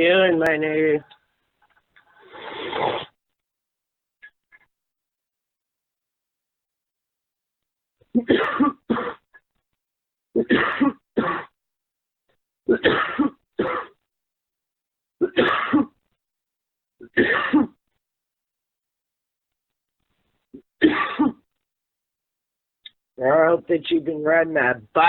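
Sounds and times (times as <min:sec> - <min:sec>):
man coughing over a phone: 0:08.2 - 0:09.2, 0:10.4 - 0:11.5, 0:12.7 - 0:14.0, 0:15.2 - 0:16.0, 0:17.1 - 0:17.8, 0:20.8 - 0:21.5.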